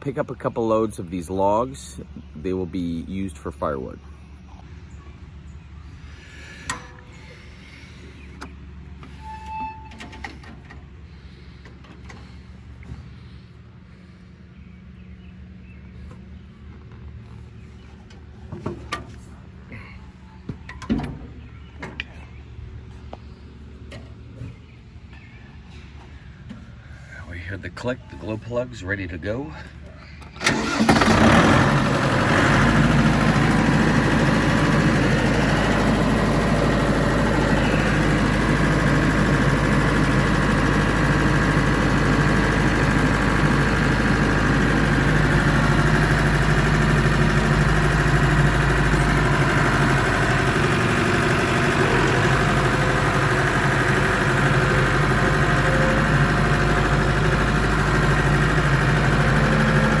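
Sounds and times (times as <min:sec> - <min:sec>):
diesel tractor engine starting: 0:05.5 - 0:22.0, 0:27.0 - 1:00.0.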